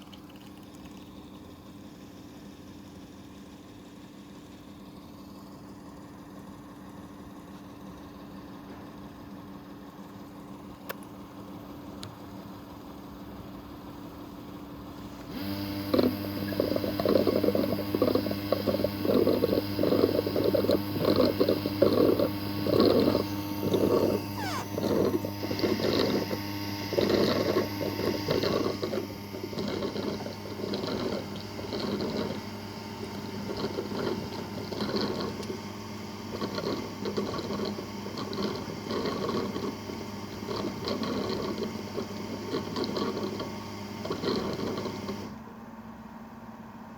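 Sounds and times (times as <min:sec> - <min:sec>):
robot vacuum hum: 0:15.2 - 0:45.4.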